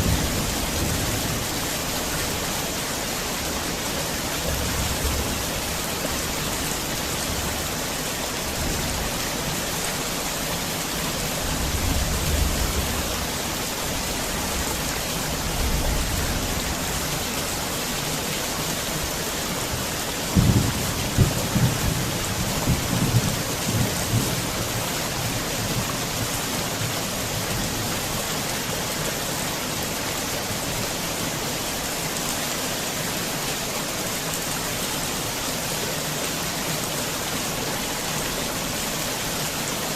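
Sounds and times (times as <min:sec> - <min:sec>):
heavy rain pouring: 0:00.0 - 0:39.9
rumbling thunder: 0:20.3 - 0:24.4.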